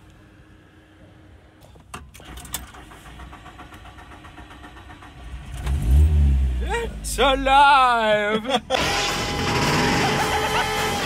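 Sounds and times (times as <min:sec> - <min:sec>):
car engine cranking: 0:01.8 - 0:07.4, 0:08.6 - 0:11.0.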